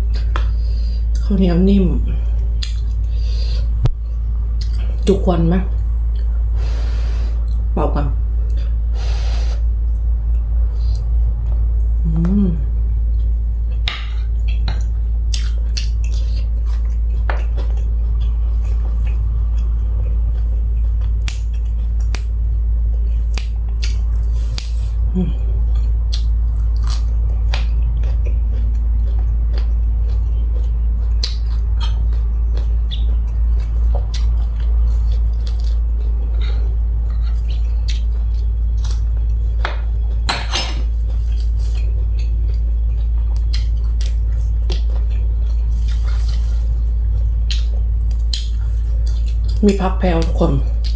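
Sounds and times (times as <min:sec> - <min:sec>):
low steady hum: 0:00.0 - 0:50.9
chewing and mouth smacks: 0:02.3 - 0:03.1, 0:04.6 - 0:05.0, 0:13.1 - 0:25.0, 0:25.7 - 0:40.3, 0:40.9 - 0:50.9.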